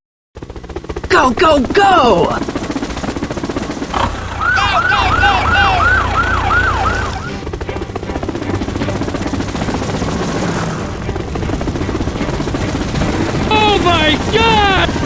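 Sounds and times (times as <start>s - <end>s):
police siren wail: 3.9s - 7.6s, 13.4s - 15.0s.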